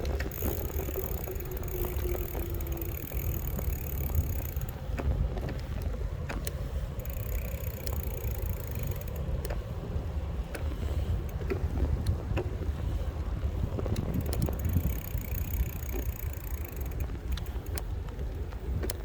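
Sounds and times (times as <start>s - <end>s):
rattles and clicks: 0.0s - 9.7s, 13.8s - 19.0s
wind buffeting microphone: 0.0s - 19.0s.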